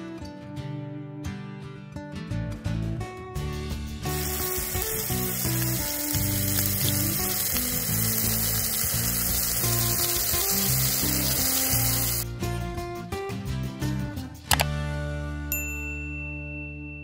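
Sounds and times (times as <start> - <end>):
background music: 0.0 - 17.0
food sizzling in frying pans: 4.0 - 12.2.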